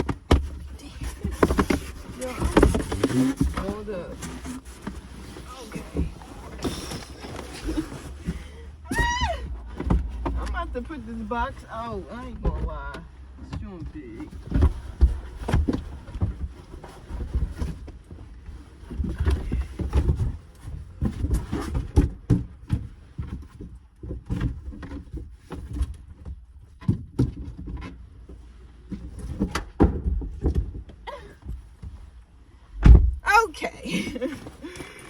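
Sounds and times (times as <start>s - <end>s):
cardboard box rustling: 0.0s - 12.9s.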